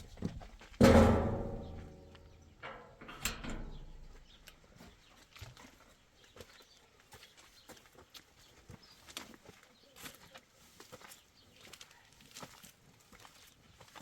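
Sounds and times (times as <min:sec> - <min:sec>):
ringing knock: 0:00.8 - 0:04.0.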